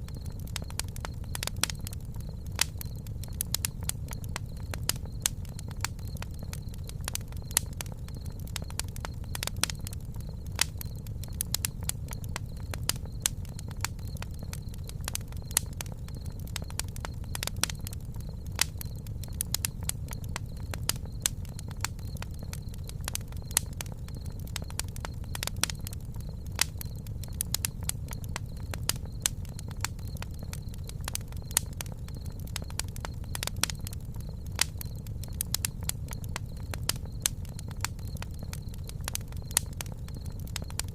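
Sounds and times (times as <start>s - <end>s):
campfire crackling: 0.0s - 40.9s.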